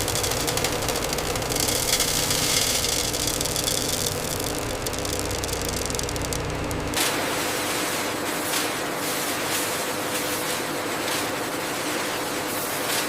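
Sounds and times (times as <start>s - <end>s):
fast rattling tick: 0.0s - 7.0s
machinery humming: 0.0s - 7.0s.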